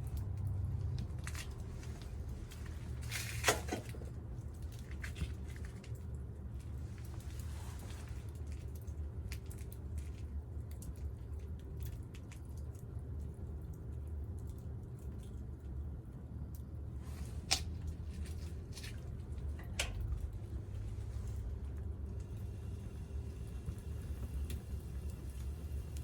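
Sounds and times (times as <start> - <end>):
fire low rumble: 0.0 - 26.0
campfire crackling: 16.7 - 26.0.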